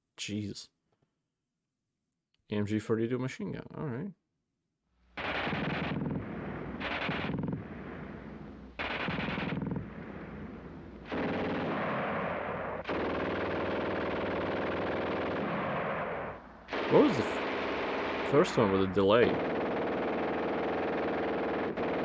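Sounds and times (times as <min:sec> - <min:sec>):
machine gun firing rapid bursts: 0:05.2 - 0:07.7, 0:08.8 - 0:10.1, 0:11.0 - 0:22.0.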